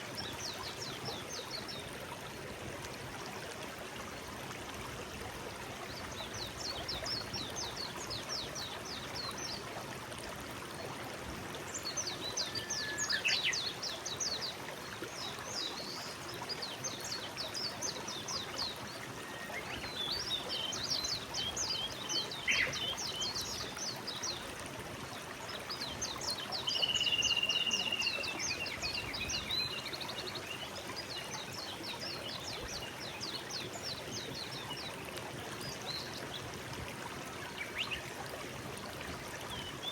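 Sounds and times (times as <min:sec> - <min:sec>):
stream water rushing: 0:00.0 - 0:39.9
songbirds trilling: 0:19.3 - 0:23.6.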